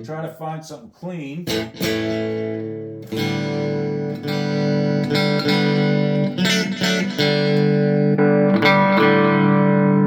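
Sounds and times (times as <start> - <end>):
electric guitar chords strummed: 1.4 - 10.0.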